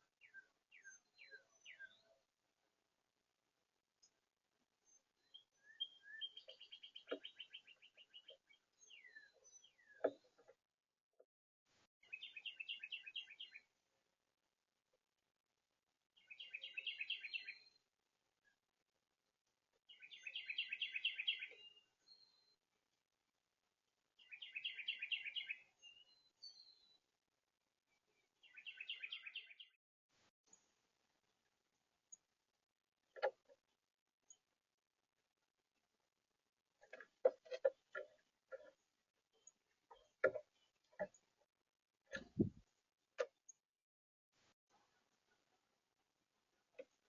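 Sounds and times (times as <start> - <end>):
songbird singing fast trill: 0.1 - 2.2, 4.9 - 10.0, 12.0 - 13.6, 16.2 - 17.8, 19.9 - 22.4, 24.2 - 27.0, 28.4 - 29.7.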